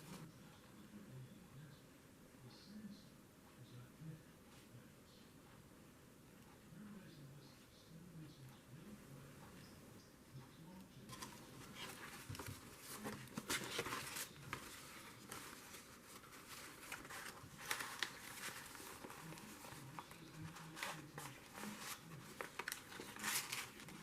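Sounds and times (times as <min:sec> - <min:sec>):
paper rustling: 0:11.1 - 0:24.0.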